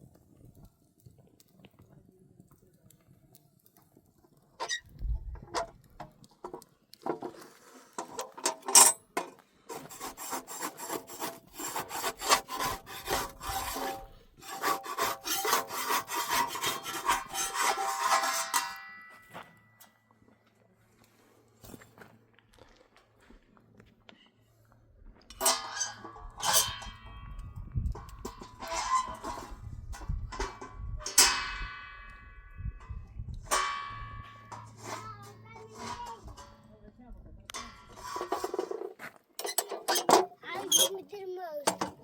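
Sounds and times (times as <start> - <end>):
rhythmic rasping scraping strokes: 9.7 - 19.0, 28.0 - 31.3, 33.4 - 36.7, 37.6 - 41.0.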